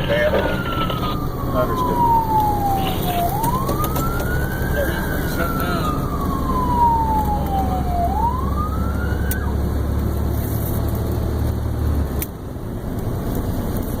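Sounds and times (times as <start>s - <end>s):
fire engine siren wailing: 0.0s - 10.4s
truck engine rumble: 0.0s - 14.0s.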